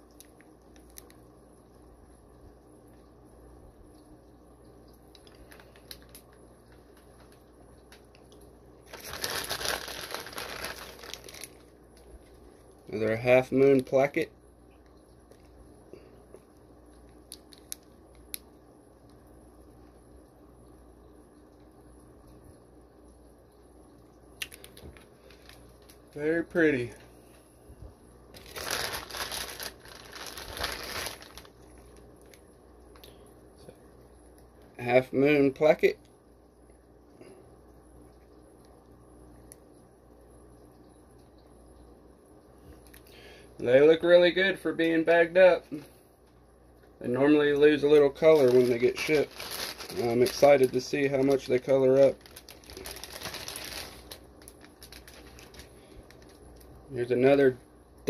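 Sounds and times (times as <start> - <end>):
plastic bag crinkling: 5.2 - 8.2, 8.8 - 13.0, 24.4 - 27.1, 28.3 - 33.1, 47.6 - 56.8.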